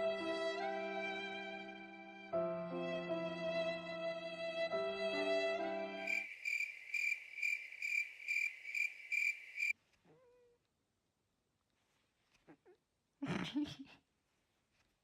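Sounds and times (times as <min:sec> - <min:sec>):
bowed string music: 0:00.0 - 0:06.1
high cricket-like chirping: 0:06.0 - 0:09.7.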